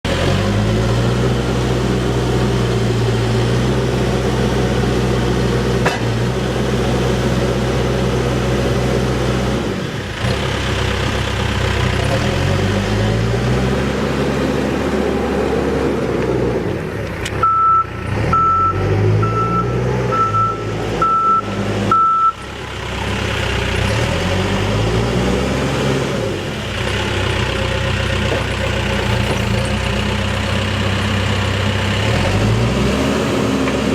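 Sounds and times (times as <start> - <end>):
backhoe diesel engine running: 0.0 - 33.9
reversing alarm beeps: 17.4 - 22.4.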